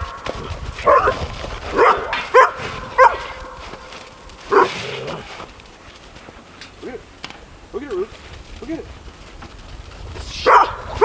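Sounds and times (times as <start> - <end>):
dog barking: 0.0 - 5.5, 10.3 - 11.0.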